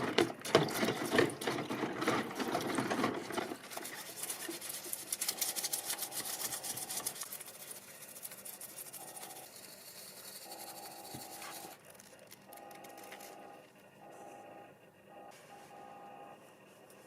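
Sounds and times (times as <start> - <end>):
tool scraping model car parts: 1.5 - 14.5.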